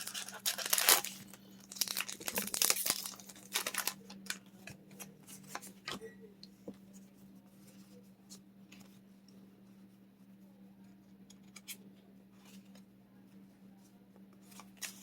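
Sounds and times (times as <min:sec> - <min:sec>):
foil pack tearing and crinkling: 0:00.0 - 0:04.4.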